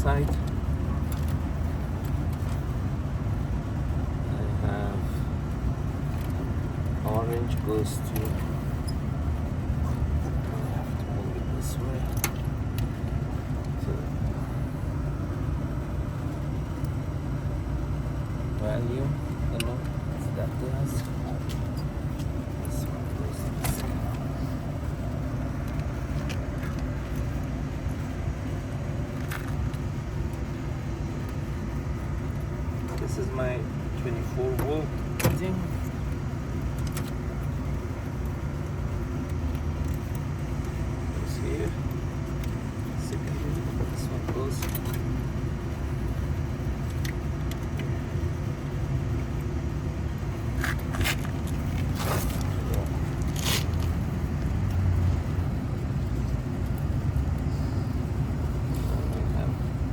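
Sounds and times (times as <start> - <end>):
low background rumble: 0.0 - 59.9
wires scraping at terminals: 50.4 - 55.5.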